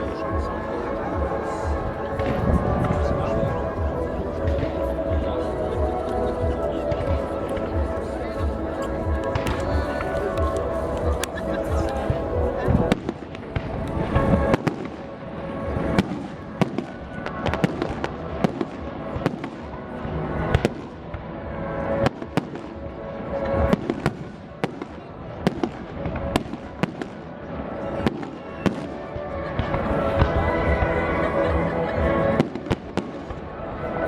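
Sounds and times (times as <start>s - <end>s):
fireworks bangs and crackles: 0.0s - 21.2s, 32.1s - 33.5s.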